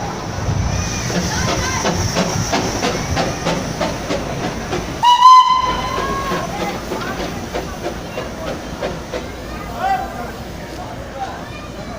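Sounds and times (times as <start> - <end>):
running train hiss and clatter: 0.0 - 11.9
train whistle blast: 5.0 - 6.2.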